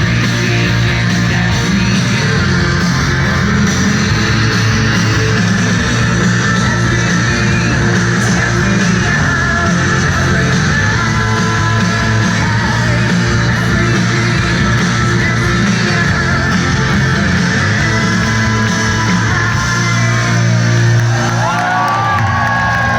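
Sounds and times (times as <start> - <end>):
live rock band playing: 0.0 - 22.9.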